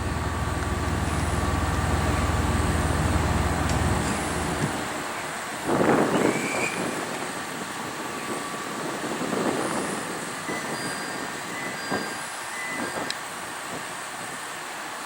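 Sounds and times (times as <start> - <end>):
diesel train running: 0.0 - 15.0
thin squeals: 10.5 - 13.0.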